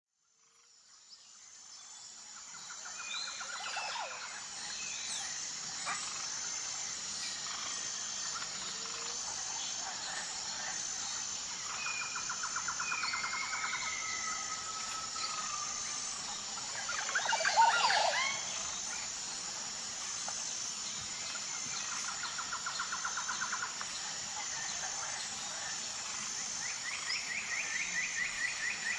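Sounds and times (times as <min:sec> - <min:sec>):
steady high-pitched drone: 0:01.6 - 0:28.9
birds chirping and trilling: 0:02.7 - 0:19.5.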